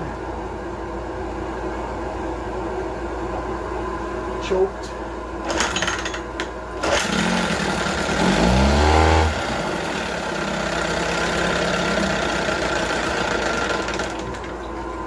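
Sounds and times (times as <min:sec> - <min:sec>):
outboard motor starting and running: 0:06.8 - 0:15.0.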